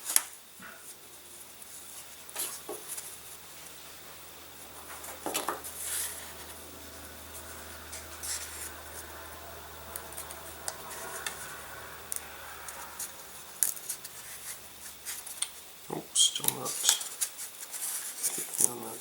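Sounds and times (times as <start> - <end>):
small parts rubbing and scraping: 1.6 - 15.8.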